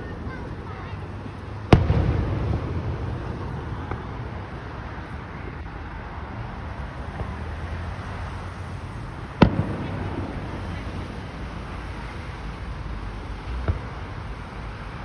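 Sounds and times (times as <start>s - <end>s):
firework bang: 1.7s - 4.4s, 9.4s - 11.6s.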